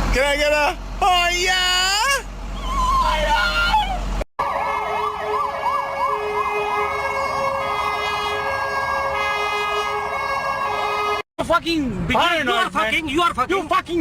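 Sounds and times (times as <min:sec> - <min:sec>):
electronic siren yelping: 0:02.6 - 0:08.5.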